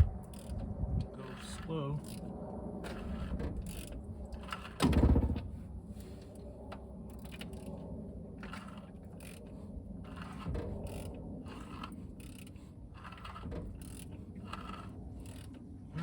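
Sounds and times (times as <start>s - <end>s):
engine clunk: 2.9s - 5.6s.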